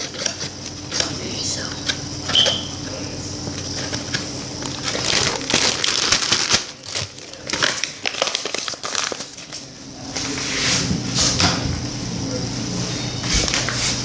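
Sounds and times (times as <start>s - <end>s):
bag crinkling and rustling: 3.6s - 10.4s.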